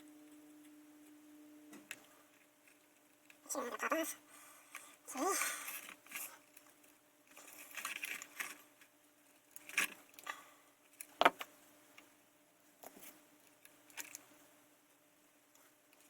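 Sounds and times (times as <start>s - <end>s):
small clicks and ticks: 12.8s - 14.4s.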